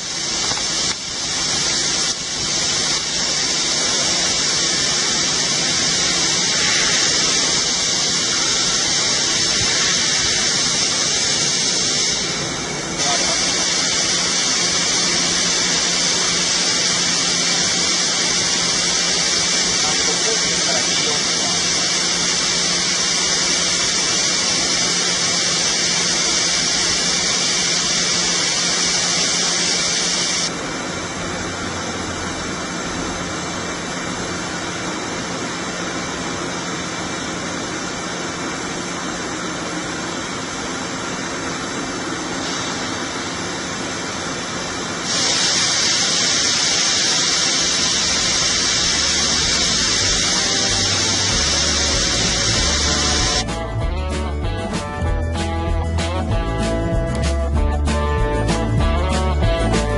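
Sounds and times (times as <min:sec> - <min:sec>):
machine hissing: 0:00.0 - 0:53.8.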